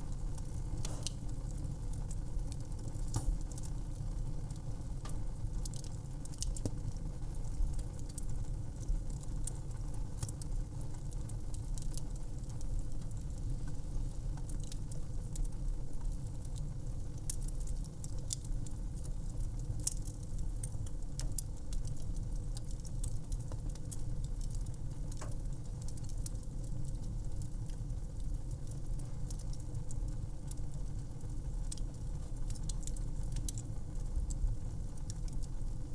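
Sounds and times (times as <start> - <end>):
wood fire pops and snaps: 0.0 - 8.3, 19.8 - 30.7, 31.6 - 35.5
low rumble of flames: 0.0 - 35.9.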